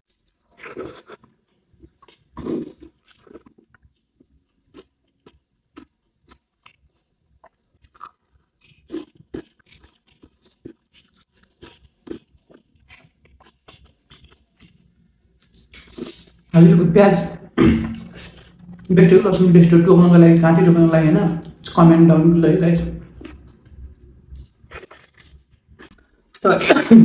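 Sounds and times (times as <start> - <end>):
person chewing crunchy food: 0.1 - 16.5, 23.0 - 26.4.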